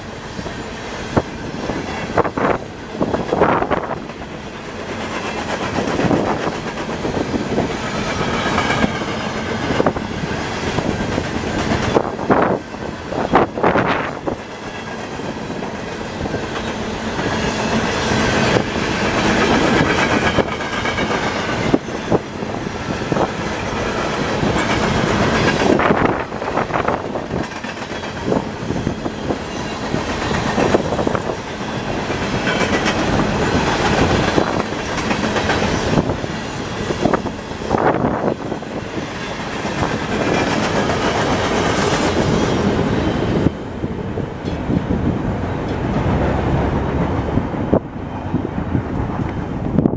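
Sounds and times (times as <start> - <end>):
train wheels clacking over rail joints: 0.4 - 43.5.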